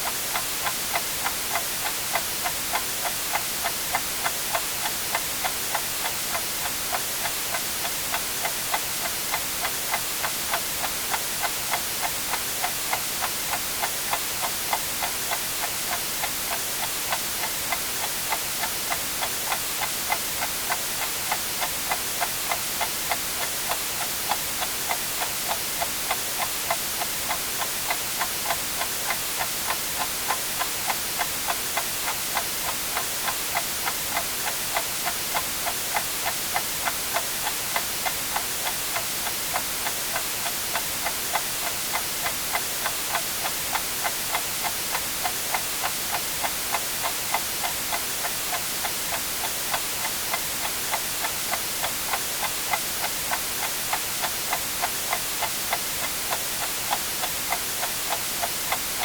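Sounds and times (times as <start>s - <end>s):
clock ticking: 0.0s - 59.0s
white-noise hiss: 0.0s - 59.0s.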